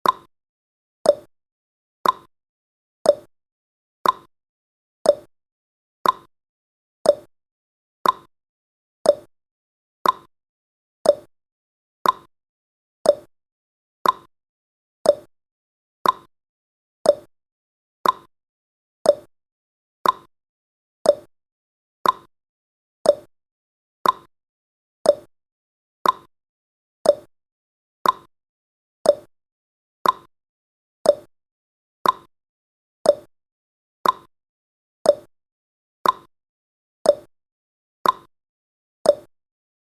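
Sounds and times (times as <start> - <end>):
clock tick-tock: 0.0 - 0.3, 1.0 - 1.3, 2.0 - 2.3, 3.0 - 3.3, 4.0 - 4.3, 5.0 - 5.3, 6.0 - 6.3, 7.0 - 7.3, 8.0 - 8.3, 9.0 - 9.3, 10.0 - 10.3, 11.0 - 11.3, 12.0 - 12.3, 13.0 - 13.3, 14.0 - 14.3, 15.0 - 15.3, 16.0 - 16.3, 17.0 - 17.3, 18.0 - 18.3, 19.0 - 19.3, 20.0 - 20.3, 21.0 - 21.3, 22.0 - 22.3, 23.0 - 23.3, 24.0 - 24.3, 25.0 - 25.3, 26.0 - 26.3, 27.0 - 27.3, 28.0 - 28.3, 29.0 - 29.3, 30.0 - 30.3, 31.0 - 31.3, 32.0 - 32.3, 33.0 - 33.3, 34.0 - 34.3, 35.0 - 35.3, 36.0 - 36.3, 37.0 - 37.3, 38.0 - 38.3, 39.0 - 39.4.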